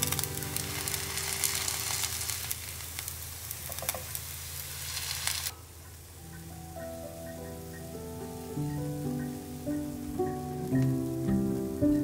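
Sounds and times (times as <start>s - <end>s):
soft background music: 0.0s - 2.4s, 6.0s - 12.0s
food sizzling in a pan: 0.0s - 5.5s.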